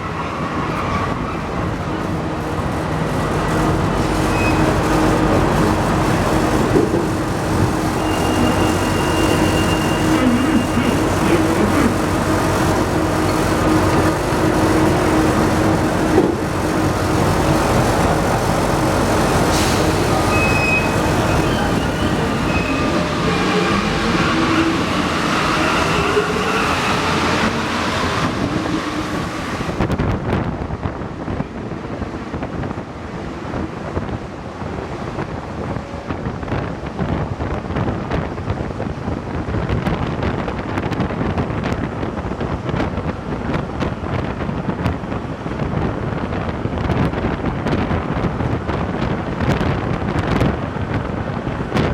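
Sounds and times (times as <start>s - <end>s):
train whining tones: 0.0s - 30.0s
train running rumble: 0.0s - 51.9s.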